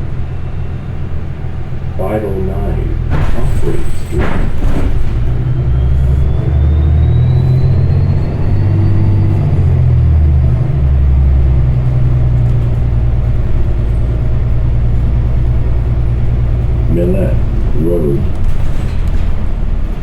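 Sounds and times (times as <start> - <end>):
faint whine: 0.0 - 9.0, 16.6 - 18.7
bus engine drone: 0.0 - 20.0.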